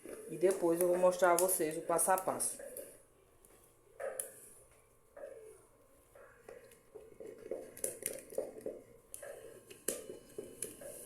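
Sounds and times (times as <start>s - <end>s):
spoon stirring sticky dough: 6.4s - 11.0s.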